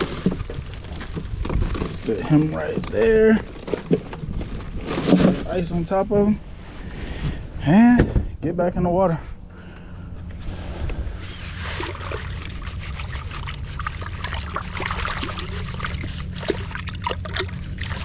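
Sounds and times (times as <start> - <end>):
steady low hum: 0.0 - 18.0
water trickling and sloshing: 11.2 - 18.0.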